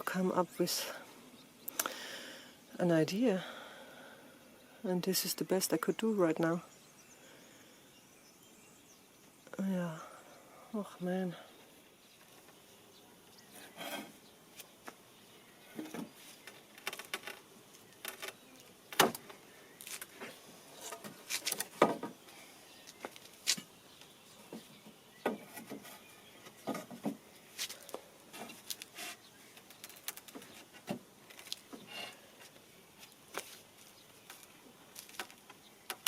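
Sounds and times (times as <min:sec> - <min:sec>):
rustling: 0:15.7 - 0:35.6.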